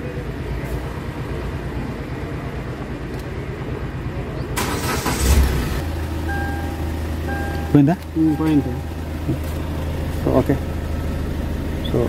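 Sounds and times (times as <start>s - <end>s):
car engine idling: 0.0s - 12.0s
car engine cranking: 4.6s - 12.0s.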